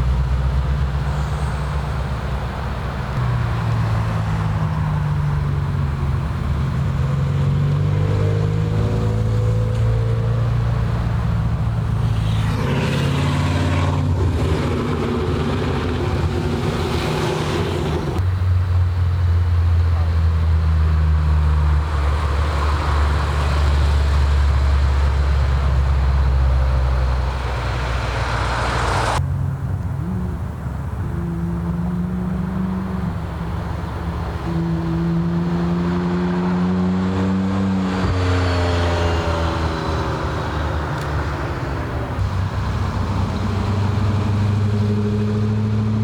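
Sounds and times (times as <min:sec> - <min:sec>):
car engines with deep exhaust drone: 0:00.0 - 0:46.0.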